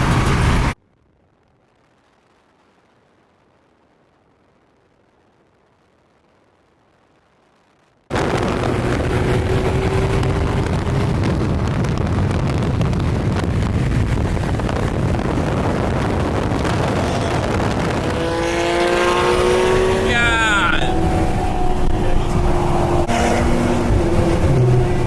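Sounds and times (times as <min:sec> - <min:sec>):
wind and road noise: 0:00.0 - 0:25.0
car engine accelerating: 0:08.1 - 0:12.6, 0:15.1 - 0:25.0.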